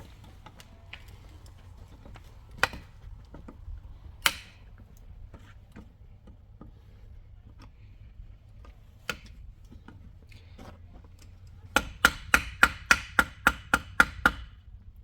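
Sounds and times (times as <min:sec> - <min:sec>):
hand tools tapping and clicking: 0:00.2 - 0:03.6, 0:04.2 - 0:06.8.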